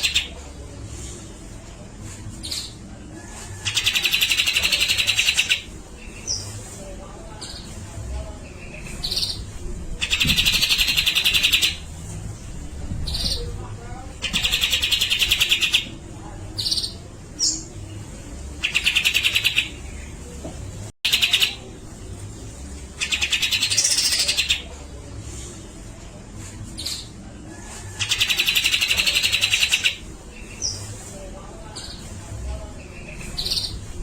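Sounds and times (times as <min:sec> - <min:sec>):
bird singing in rattling bursts: 0:03.7 - 0:05.6, 0:10.0 - 0:11.8, 0:14.2 - 0:15.9, 0:18.6 - 0:19.7, 0:21.1 - 0:21.6, 0:23.0 - 0:24.6.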